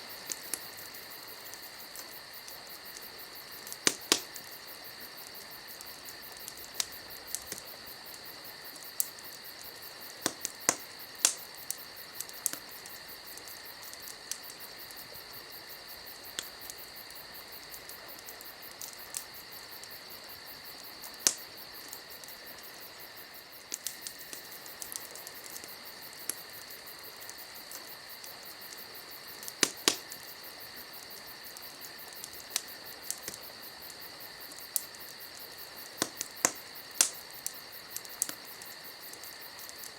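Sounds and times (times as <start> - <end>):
steady high hiss: 0.0 - 39.9
wood fire crackling: 0.0 - 39.9.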